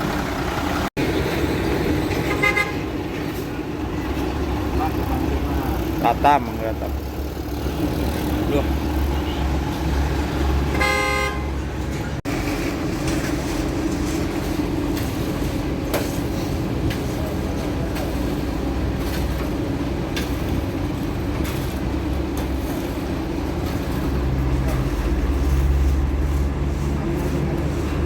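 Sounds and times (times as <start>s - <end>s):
large engine running: 0.0s - 28.0s
vehicle horn toot: 2.3s - 2.9s, 9.1s - 9.6s, 10.7s - 11.7s.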